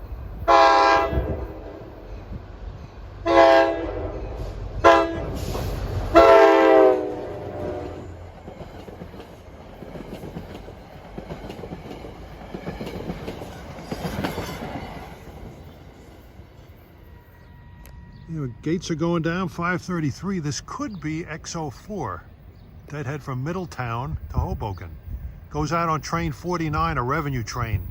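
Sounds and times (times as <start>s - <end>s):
locomotive rumbling: 0.0s - 27.9s
train air horn blasts: 0.5s - 2.1s, 3.2s - 8.2s
train wheels clattering on rails: 7.3s - 16.4s
crossing signal: 15.5s - 27.9s.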